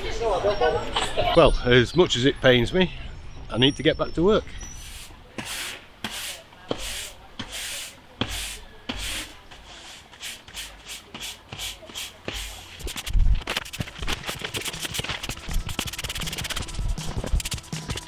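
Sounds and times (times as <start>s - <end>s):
broom sweeping sand on paving: 4.8s - 17.6s.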